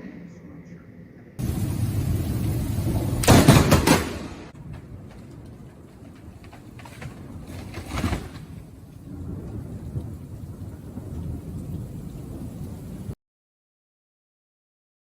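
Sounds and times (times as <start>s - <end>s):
rain noise: 1.4s - 13.2s
thunder burst: 1.4s - 13.2s.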